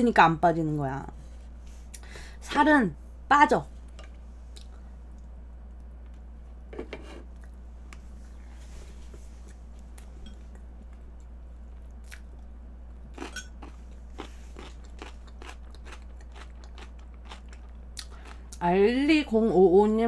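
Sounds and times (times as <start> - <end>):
low hum: 0.0 - 20.0
person chewing cake: 9.4 - 18.6.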